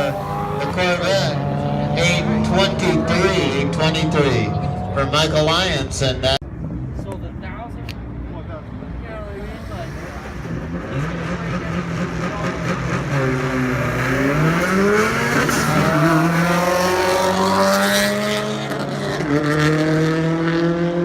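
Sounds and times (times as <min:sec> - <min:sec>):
car engine accelerating through gears: 0:00.0 - 0:05.4, 0:10.0 - 0:21.0.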